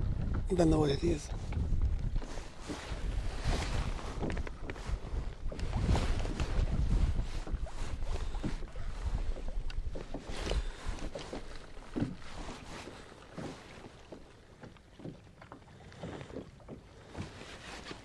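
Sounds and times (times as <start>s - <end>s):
wind rumble on microphone: 0.0s - 13.1s
water lapping against kayak hull: 0.0s - 18.0s.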